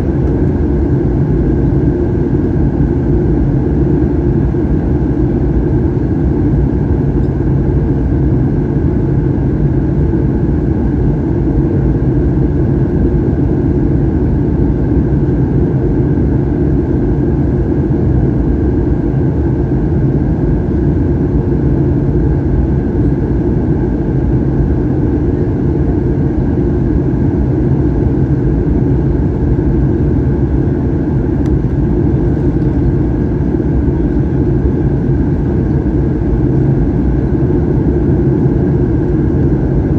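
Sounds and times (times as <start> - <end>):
jet engines droning: 0.0 - 39.9
steady hums: 0.0 - 39.9.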